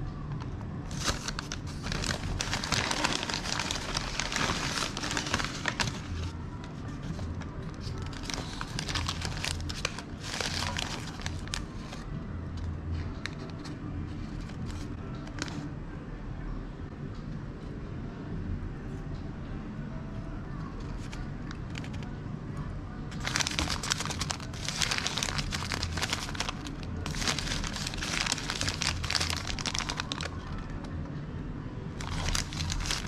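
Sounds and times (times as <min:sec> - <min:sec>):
paper packaging crinkling: 0:00.9 - 0:06.4, 0:07.0 - 0:12.0, 0:14.3 - 0:15.6, 0:23.1 - 0:30.8, 0:32.0 - 0:33.0.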